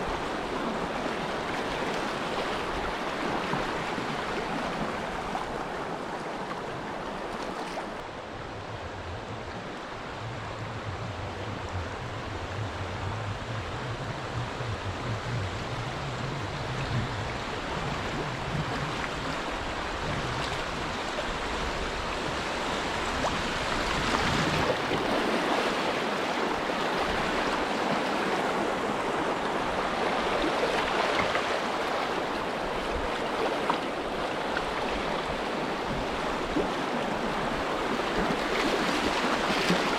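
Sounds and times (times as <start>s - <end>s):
river water rushing over riffles: 0.0s - 39.9s
low steady hum: 8.0s - 21.0s.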